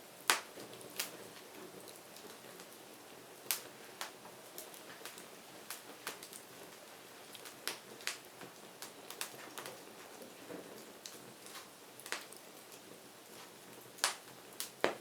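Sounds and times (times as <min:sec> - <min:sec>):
firewood crackling and popping: 0:00.0 - 0:15.0.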